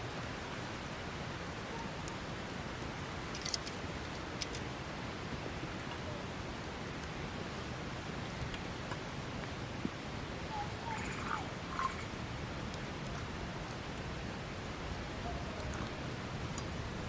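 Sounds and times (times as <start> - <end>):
burning wood crackles: 0.0 - 17.0
campfire hissing: 0.0 - 17.0.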